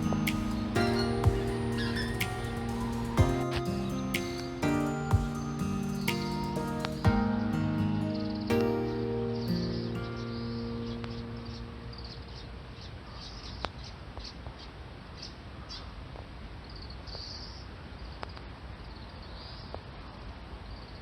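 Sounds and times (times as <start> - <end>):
background music: 0.0 - 12.0
small birds chirping: 0.0 - 16.0.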